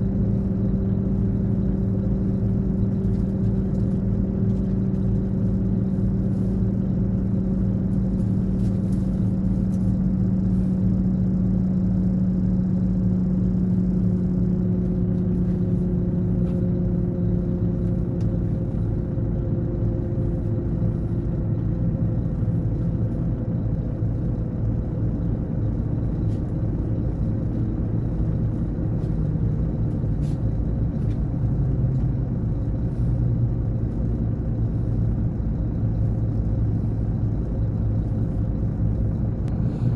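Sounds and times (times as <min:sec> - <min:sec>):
coach engine running: 0:00.0 - 0:39.9.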